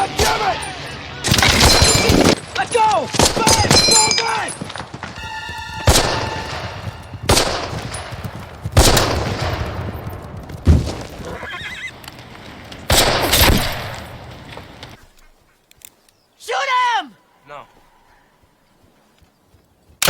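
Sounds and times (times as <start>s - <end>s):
gunshots with echoing tail: 1.3s - 10.9s
horse whinnying: 11.2s - 12.0s.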